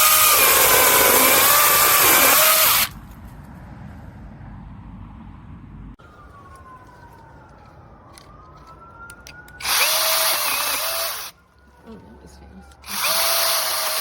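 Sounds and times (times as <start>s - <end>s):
mini chainsaw buzzing whine: 0.0s - 2.9s.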